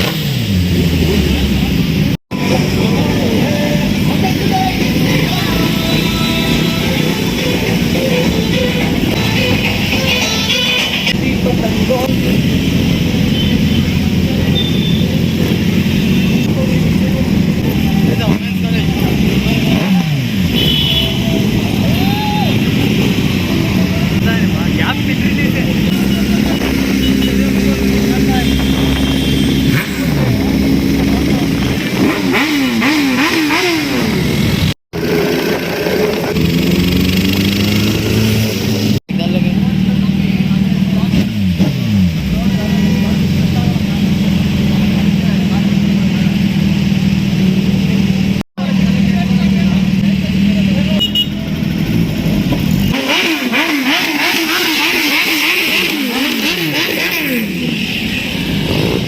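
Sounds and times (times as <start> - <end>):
motorbike engines running: 0.0 - 59.0
motorbike revving in blips: 12.5 - 22.0, 25.4 - 39.0, 50.7 - 59.0.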